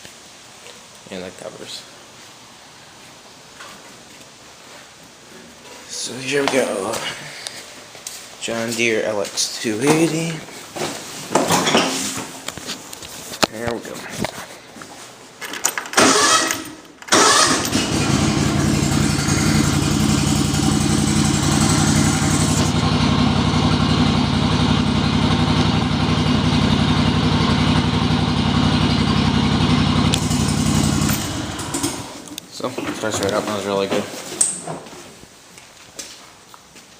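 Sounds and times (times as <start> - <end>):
lawn tractor engine starting: 15.8 - 32.3.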